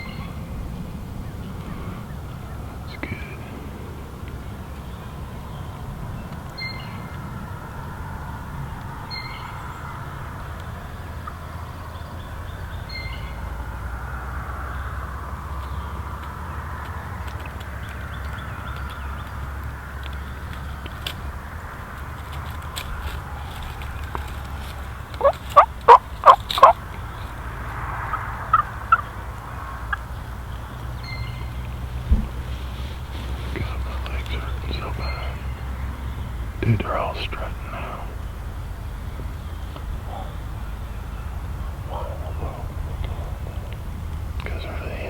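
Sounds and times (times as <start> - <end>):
steady low rumble: 0.0 - 45.0
turkey yelping: 24.8 - 29.1.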